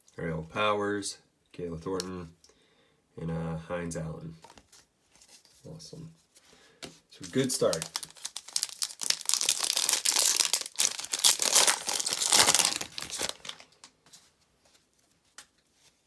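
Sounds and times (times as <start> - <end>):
foil wrapper crinkling and tearing: 7.2 - 13.9.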